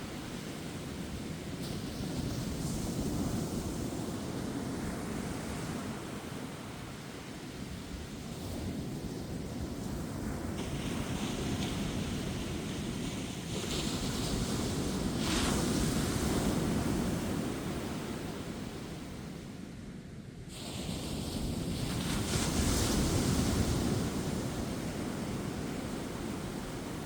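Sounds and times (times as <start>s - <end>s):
ocean surf breaking on beach: 20.5s - 27.0s.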